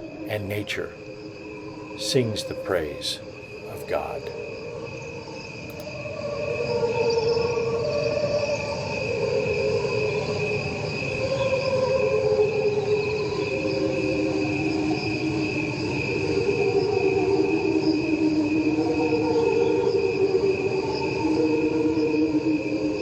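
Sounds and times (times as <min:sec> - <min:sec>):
crickets trilling: 0:00.0 - 0:23.0
slowed cricket song choir-like tones: 0:00.0 - 0:23.0.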